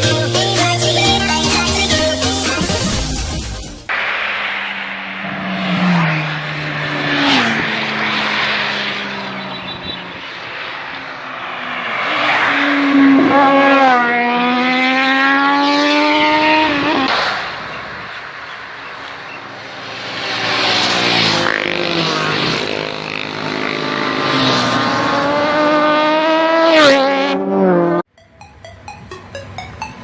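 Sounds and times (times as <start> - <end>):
engines accelerating hard: 3.9 - 28.0.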